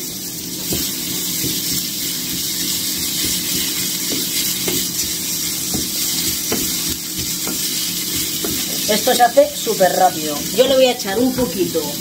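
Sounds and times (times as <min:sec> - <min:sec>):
food sizzling in a frying pan: 0:00.0 - 0:12.0
wooden spatula scraping a pan: 0:00.6 - 0:09.7.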